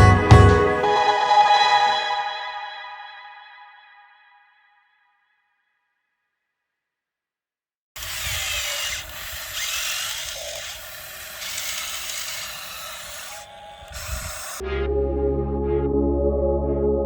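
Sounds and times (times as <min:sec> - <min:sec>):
small electric motors whirring: 0:08.0 - 0:14.6.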